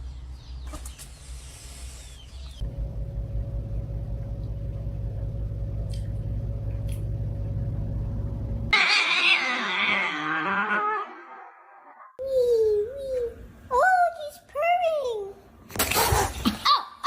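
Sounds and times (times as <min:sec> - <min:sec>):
low fast-pulsing rumble: 0:02.6 - 0:08.7.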